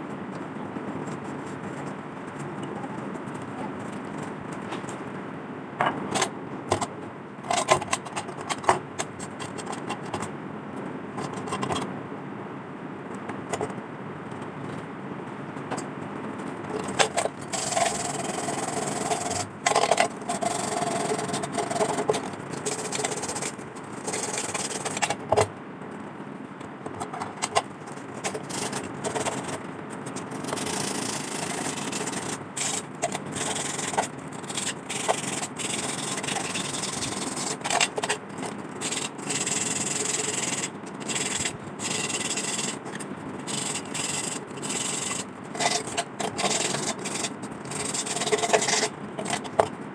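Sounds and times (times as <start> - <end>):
sandpaper scraping metal: 27.4 - 48.9.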